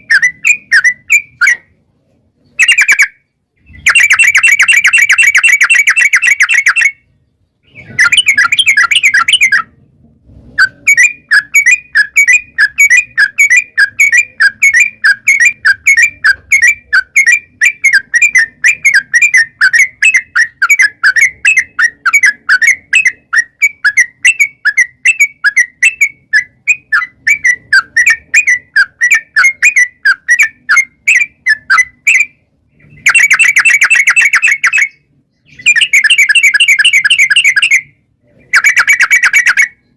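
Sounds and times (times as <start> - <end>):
bird chattering song: 0.0 - 1.8, 2.4 - 9.8, 10.6 - 39.9.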